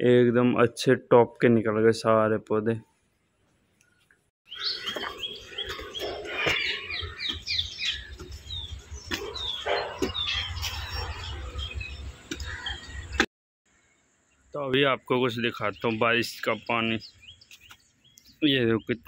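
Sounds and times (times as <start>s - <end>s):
birds chirping: 3.8s - 19.0s.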